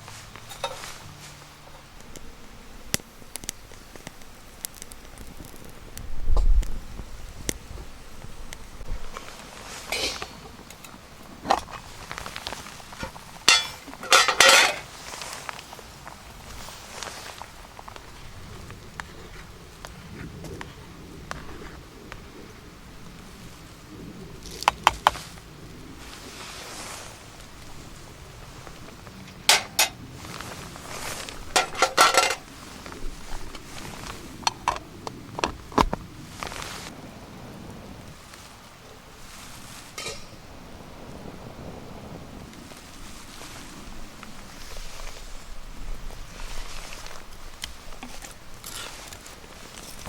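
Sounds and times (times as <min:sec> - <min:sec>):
metal cookware clinking: 0:00.4 - 0:01.0, 0:09.9 - 0:10.4, 0:13.5 - 0:14.9, 0:29.4 - 0:30.0, 0:31.6 - 0:32.4, 0:40.0 - 0:40.4.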